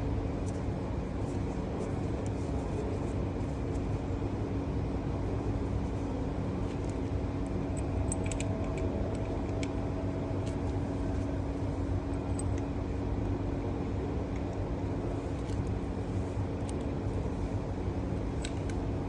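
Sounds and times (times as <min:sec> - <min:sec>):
light metallic clicks: 0:07.7 - 0:09.8.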